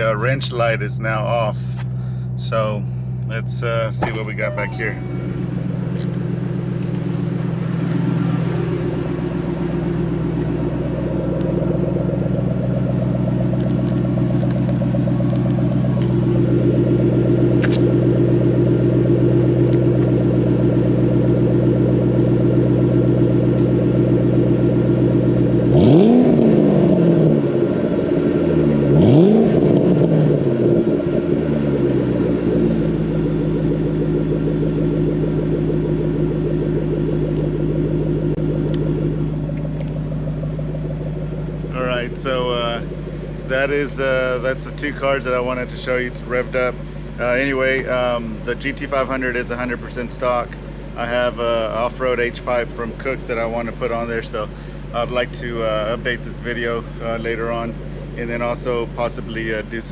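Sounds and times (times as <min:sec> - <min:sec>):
car engine idling and revving: 0:00.0 - 0:59.9.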